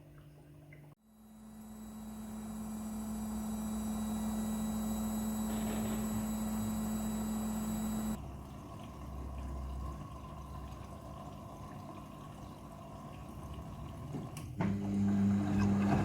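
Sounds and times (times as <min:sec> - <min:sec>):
washing machine humming: 0:00.0 - 0:16.0.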